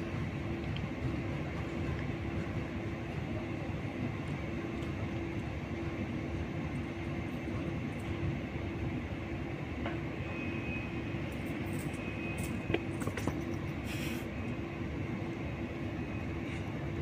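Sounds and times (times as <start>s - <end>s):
train low rumble: 0.0s - 17.0s
brief hiss: 13.8s - 14.3s.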